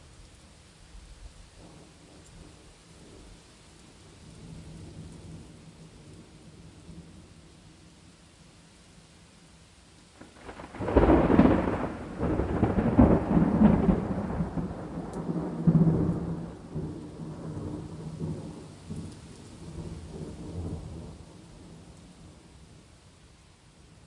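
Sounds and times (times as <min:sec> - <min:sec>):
rain hiss: 0:00.0 - 0:24.0
thunderclap rumbling: 0:10.2 - 0:22.4.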